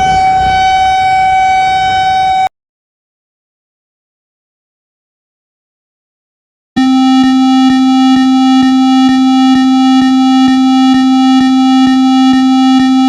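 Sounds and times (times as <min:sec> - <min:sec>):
buzzy electronic alert tone: 0:06.8 - 0:13.0.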